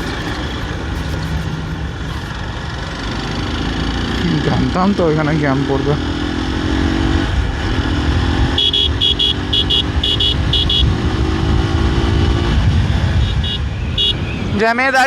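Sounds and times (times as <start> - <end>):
steady droning tone: 0.0 - 4.4
motorcycle running: 0.0 - 15.0
vehicle horn short beeps: 8.5 - 11.0, 13.2 - 14.2.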